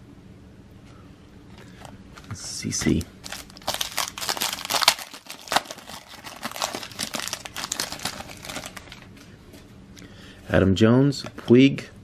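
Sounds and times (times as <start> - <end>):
foil wrapper crinkling: 1.7 - 9.3.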